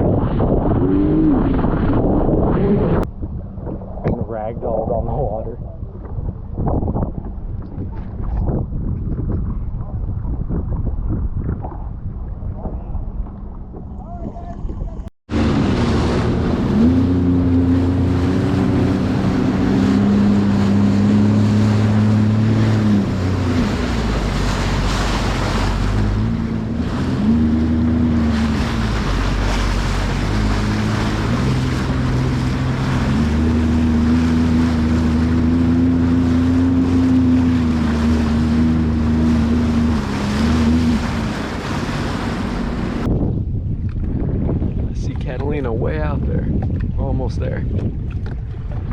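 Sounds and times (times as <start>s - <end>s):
jet ski engine: 0.0s - 48.9s
wind buffeting microphone: 0.0s - 48.9s.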